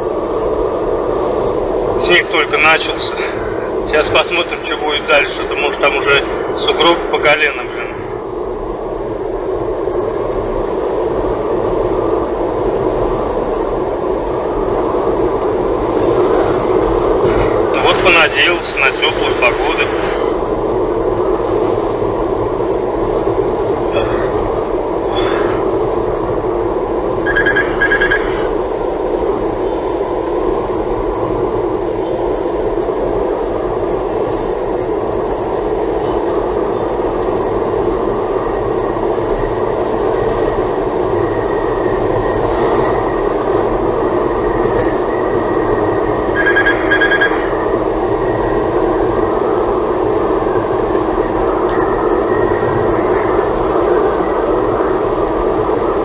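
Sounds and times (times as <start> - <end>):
short high squeaks: 23.9 - 25.8, 27.3 - 28.7, 46.4 - 47.7.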